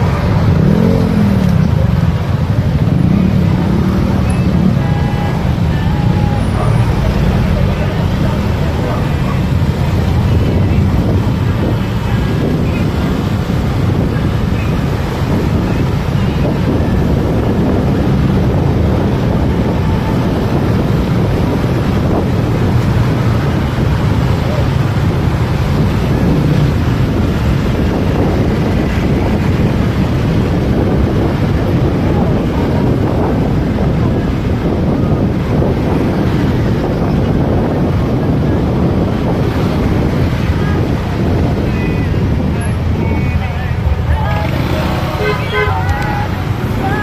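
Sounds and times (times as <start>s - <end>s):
motorcycle ride rumble: 0.0s - 47.0s
wind rushing over microphone: 0.0s - 47.0s.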